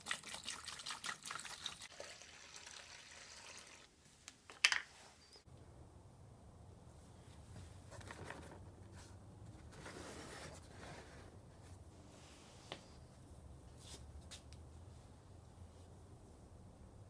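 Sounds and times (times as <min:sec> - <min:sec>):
faint scraping and handling: 0:07.1 - 0:14.1.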